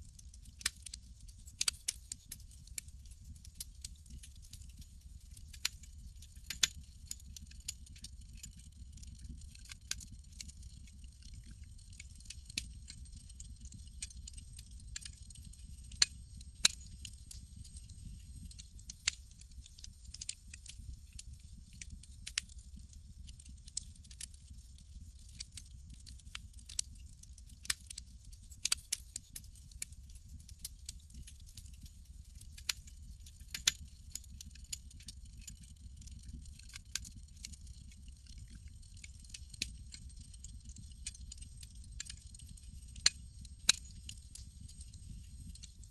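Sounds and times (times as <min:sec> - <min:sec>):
low rumble of fire: 0:00.0 - 0:45.9
campfire pops and snaps: 0:00.4 - 0:05.7, 0:06.5 - 0:06.8, 0:08.4 - 0:20.8, 0:21.6 - 0:22.5, 0:25.3 - 0:29.0, 0:39.3 - 0:45.5.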